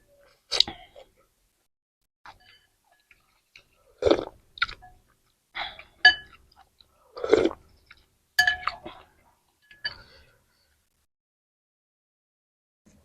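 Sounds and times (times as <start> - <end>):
person chewing food: 2.3 - 9.1.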